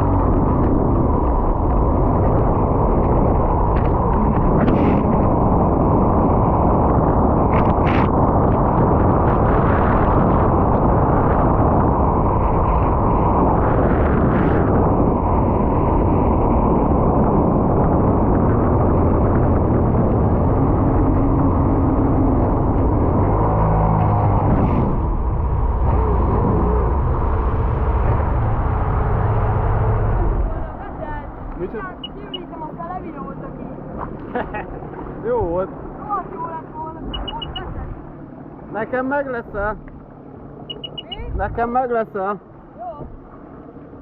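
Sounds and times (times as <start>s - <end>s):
wind and water rushing: 0.0s - 44.0s
watercraft engine running: 31.6s - 41.4s.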